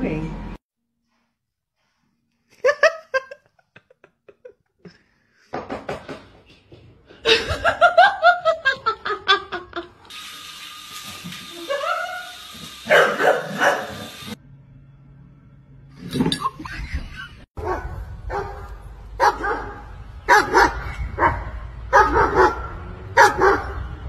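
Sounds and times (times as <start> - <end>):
people laughing: 2.5 - 5.1, 7.2 - 10.1, 16.4 - 17.5.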